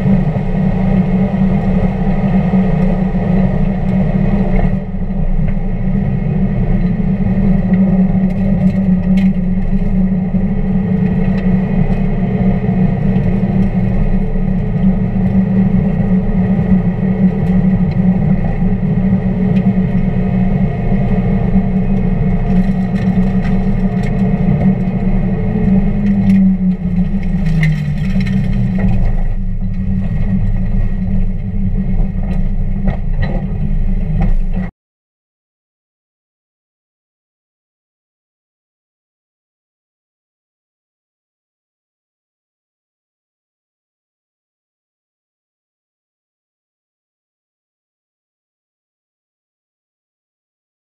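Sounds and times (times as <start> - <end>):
car engine droning: 0.0 - 34.7.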